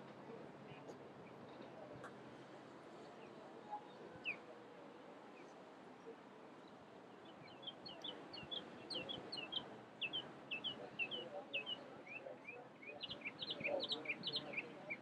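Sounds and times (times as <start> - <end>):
low steady background hiss: 0.0 - 15.0
birds chirping: 3.8 - 4.4, 6.6 - 15.0.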